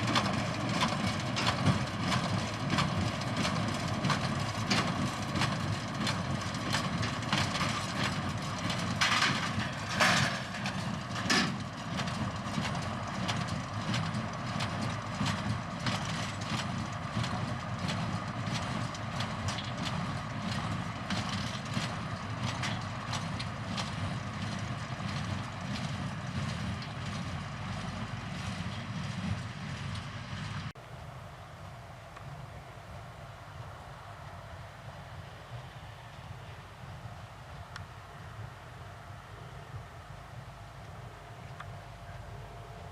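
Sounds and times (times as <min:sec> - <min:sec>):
hay baler clattering: 0:00.0 - 0:30.7
tractor engine droning: 0:00.0 - 0:42.9.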